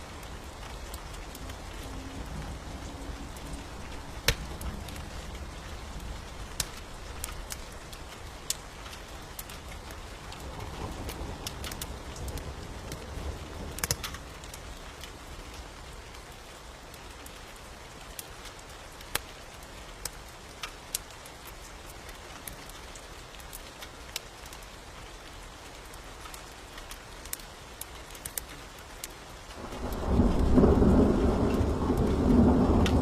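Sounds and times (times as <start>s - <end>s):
rain hiss: 0.0s - 33.0s
wood fire crackling and popping: 3.2s - 15.7s, 16.3s - 33.0s.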